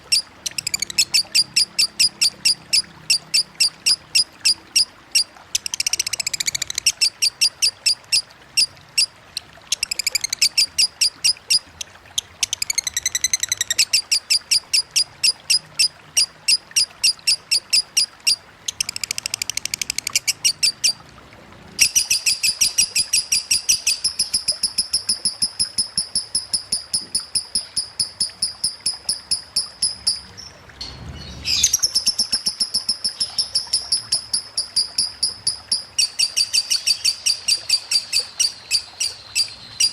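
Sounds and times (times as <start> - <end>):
lovebird rapid high chirps: 0.0 - 9.1, 9.7 - 11.8, 12.4 - 21.0, 21.8 - 39.9.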